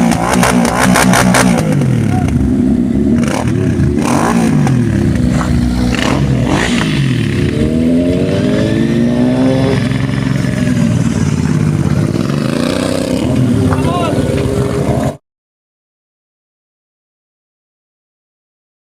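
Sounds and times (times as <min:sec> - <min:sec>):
motorbike engines revving: 0:00.0 - 0:15.2.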